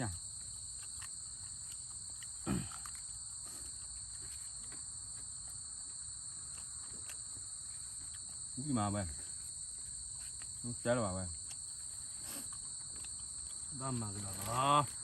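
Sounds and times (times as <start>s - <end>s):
insects chirring shrilly: 7.1s - 15.0s.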